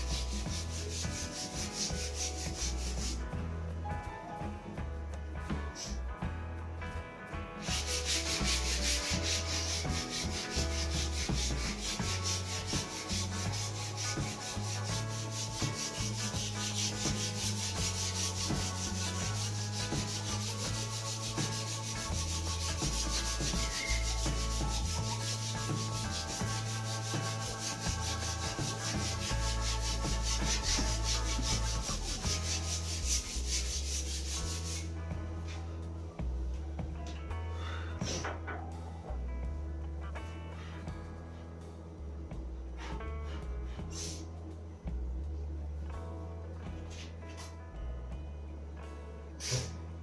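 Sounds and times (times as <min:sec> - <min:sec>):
sandpaper scratching wood: 0:00.0 - 0:03.2, 0:07.6 - 0:35.0
low steady hum: 0:35.0 - 0:50.0.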